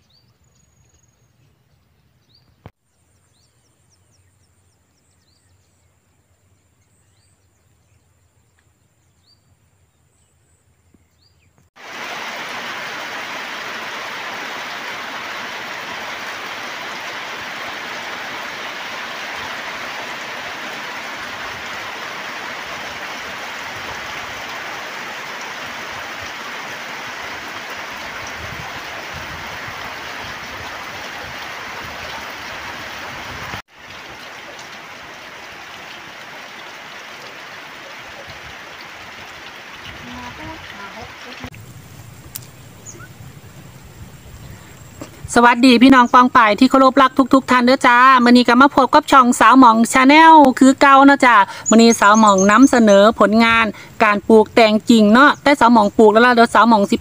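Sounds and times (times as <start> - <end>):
steady rain falling: 11.7 - 57.0.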